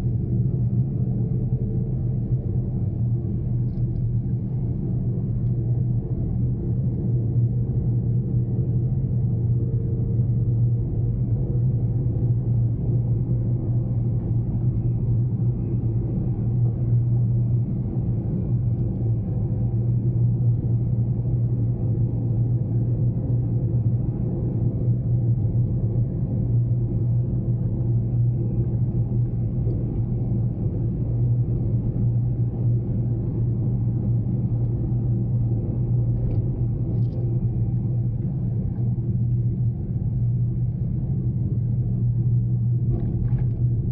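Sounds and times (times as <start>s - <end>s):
engine and road rumble in cabin: 0.0s - 43.9s.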